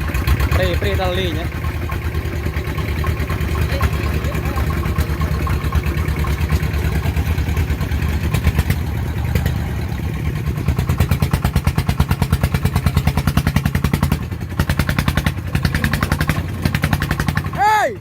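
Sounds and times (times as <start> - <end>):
diesel engine chugging under load: 0.0 - 18.0.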